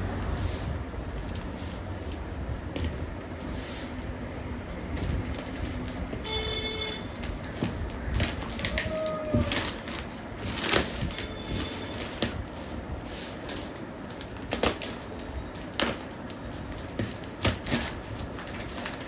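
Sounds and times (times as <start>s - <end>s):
packaging rustling: 7.0s - 19.0s.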